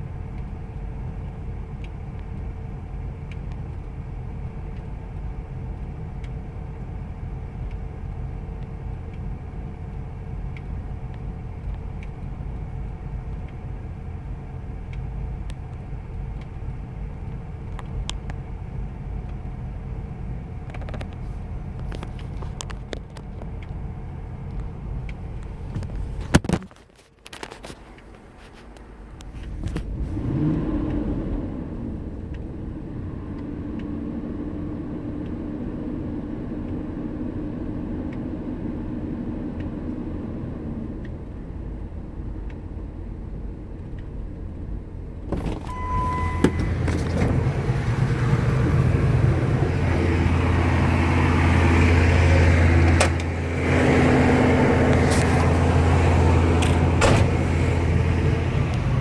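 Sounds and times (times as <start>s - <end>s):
car engine idling rough: 40.7s - 59.0s
short beep: 45.4s - 47.1s.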